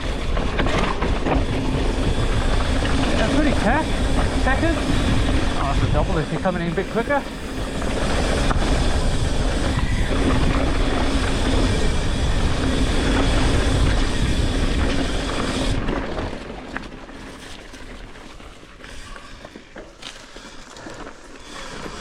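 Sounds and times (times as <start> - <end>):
wind buffeting microphone: 0.0 - 16.5
tyre and trail rumble: 0.0 - 22.0.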